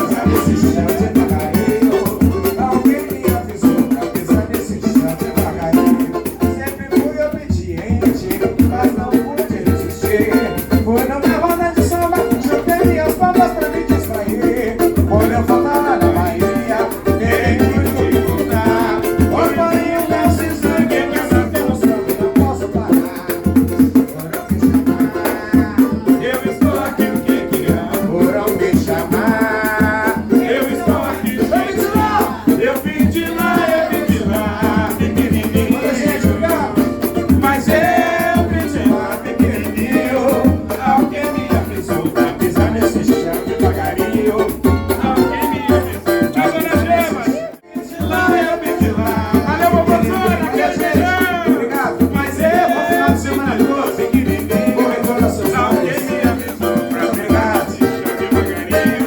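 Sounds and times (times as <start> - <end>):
percussion beat with shakers: 0.0 - 59.0
voices singing: 0.0 - 59.0.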